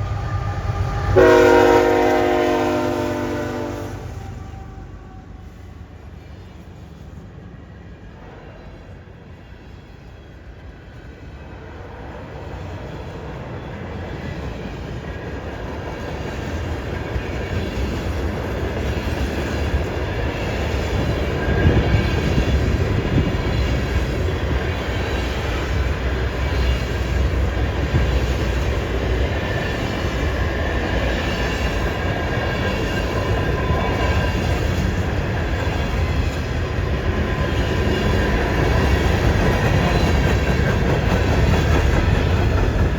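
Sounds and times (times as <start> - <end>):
locomotive engines rumbling: 0.0 - 6.6
train wheels clicking and squealing: 4.2 - 42.9.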